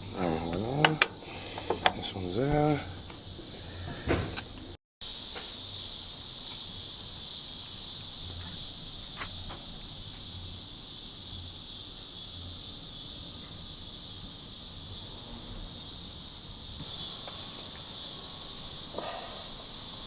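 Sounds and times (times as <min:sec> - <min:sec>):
insect chorus chirring: 0:00.0 - 0:20.0.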